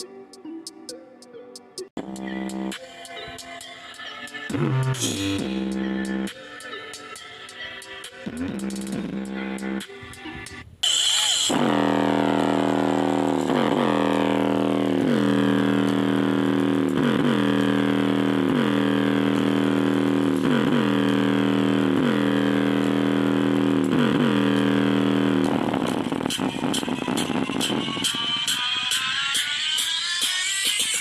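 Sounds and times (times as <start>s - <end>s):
subwoofer droning swooping tone: 2.0s - 2.8s, 4.5s - 6.3s, 8.3s - 9.9s, 10.9s - 28.6s.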